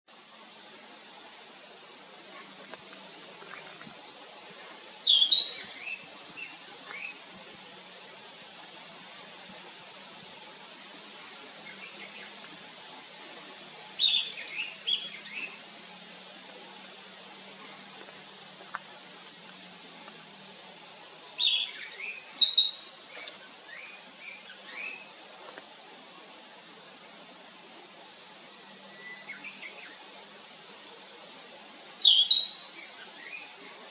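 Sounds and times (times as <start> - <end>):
bird whistling song: 5.0 - 7.2, 21.4 - 22.9, 28.9 - 29.9, 32.0 - 32.6.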